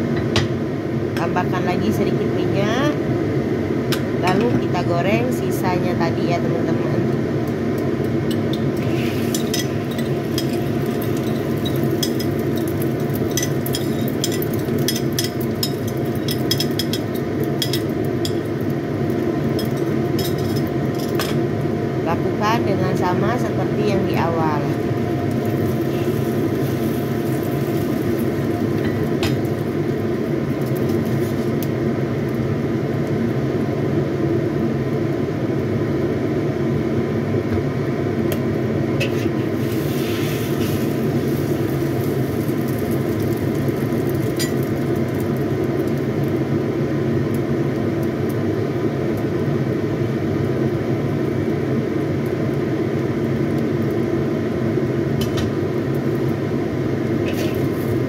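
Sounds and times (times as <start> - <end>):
low kitchen rumble: 0.0 - 35.4, 37.1 - 52.0, 52.6 - 58.0
faint hum: 0.0 - 47.4
omelette frying in a wok: 7.2 - 22.1, 24.8 - 58.0
metal spatula scraping a wok: 39.0 - 40.9.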